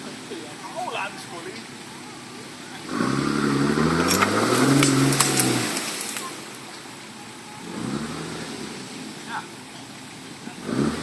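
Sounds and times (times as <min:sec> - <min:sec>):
engine revving: 0:02.6 - 0:06.6, 0:07.6 - 0:09.6, 0:10.5 - 0:11.0.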